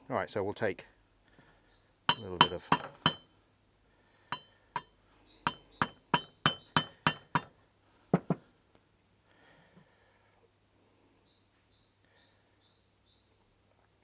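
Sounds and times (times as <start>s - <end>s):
hammer tapping on steel: 2.1s - 3.3s, 4.3s - 4.9s, 5.5s - 7.5s.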